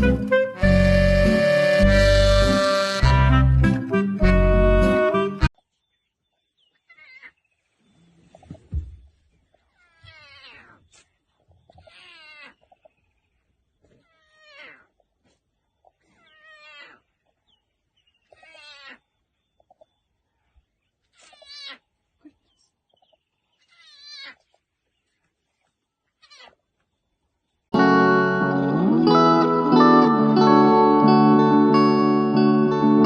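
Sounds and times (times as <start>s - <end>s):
cat meowing: 9.8s - 10.8s, 11.8s - 12.5s, 26.2s - 26.6s.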